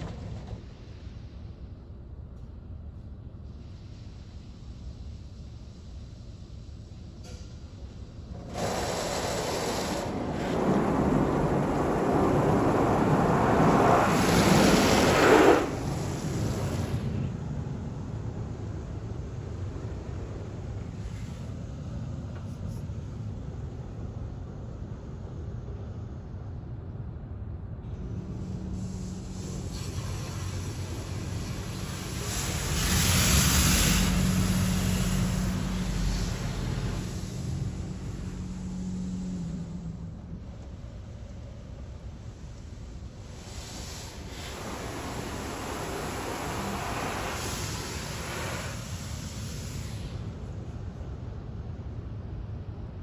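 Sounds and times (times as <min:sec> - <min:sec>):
high-pressure water spray rushing: 0:08.5 - 0:17.1, 0:28.7 - 0:39.6, 0:43.2 - 0:50.3.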